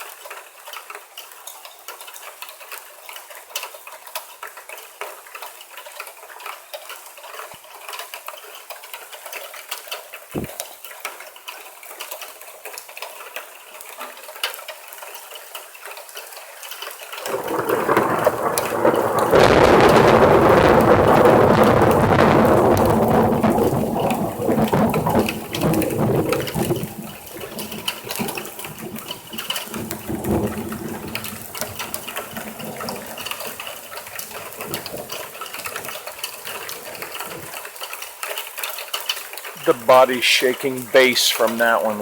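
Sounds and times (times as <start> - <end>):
rain pattering and dripping: 0.0 - 42.0
deep thunder rumble: 17.2 - 37.5.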